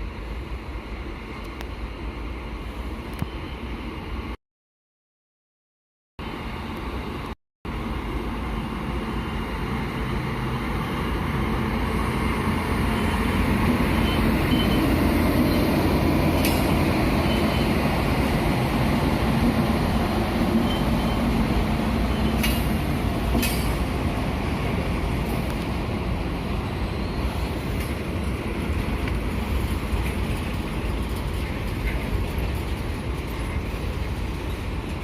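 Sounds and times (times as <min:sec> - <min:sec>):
freight train rumbling past: 0:06.2 - 0:35.0.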